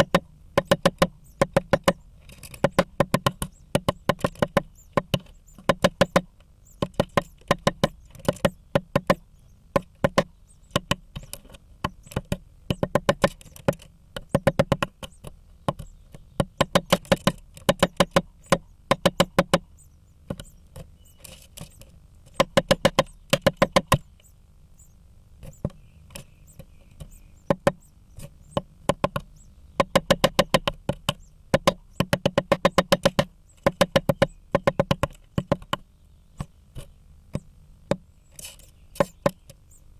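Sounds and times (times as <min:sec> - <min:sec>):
low steady hum: 0:00.0 - 0:39.9
woodpecker hammering: 0:00.0 - 0:39.9.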